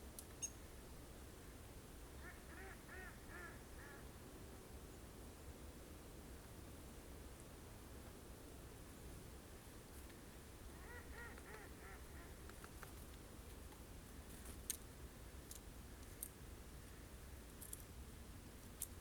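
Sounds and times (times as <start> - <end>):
bird calling: 10.7 - 12.5.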